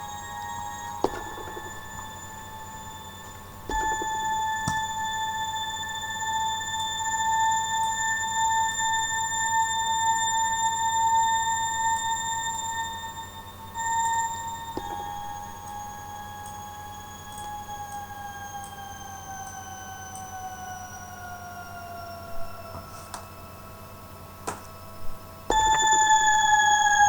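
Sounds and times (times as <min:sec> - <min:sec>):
synth bell-like held note: 0:00.0 - 0:07.6, 0:13.7 - 0:17.2, 0:25.5 - 0:27.0.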